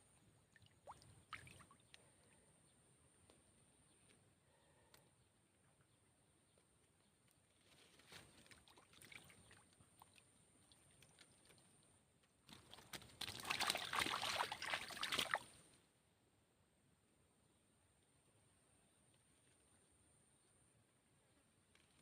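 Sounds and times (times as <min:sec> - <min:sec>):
water splashing and sloshing: 0:00.5 - 0:02.4, 0:07.9 - 0:15.7.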